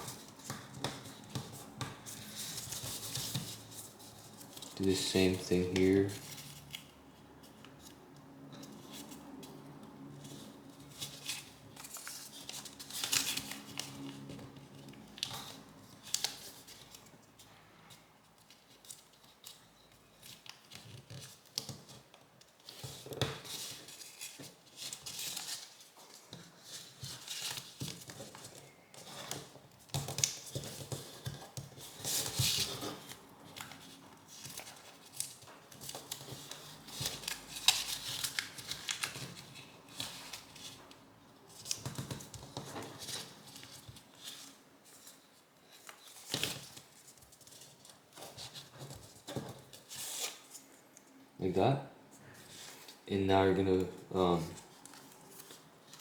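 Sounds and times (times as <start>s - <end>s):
paper rustling and crinkling: 0.0s - 8.0s, 10.2s - 50.8s, 54.2s - 56.0s
paper fold scraping: 26.6s - 40.8s.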